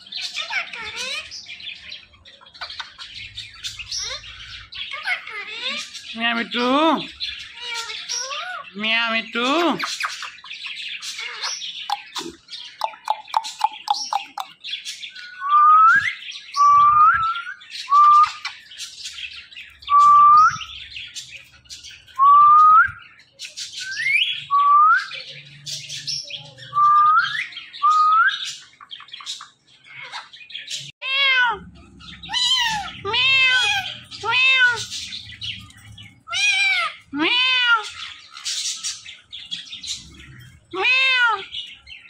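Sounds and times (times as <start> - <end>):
parrot chirps: 11.1 - 14.6, 32.3 - 35.1, 36.3 - 38.9
parrot meow-like calls: 31.0 - 31.7, 32.3 - 34.9, 36.3 - 38.2, 40.7 - 41.5.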